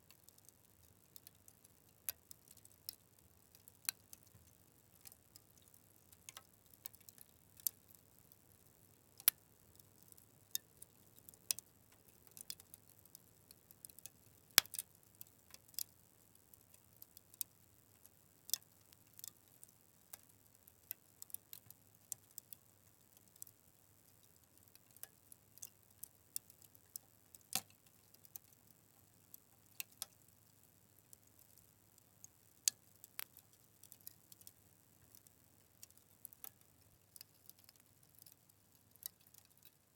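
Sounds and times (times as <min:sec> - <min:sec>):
fire crackling: 0:32.5 - 0:35.2.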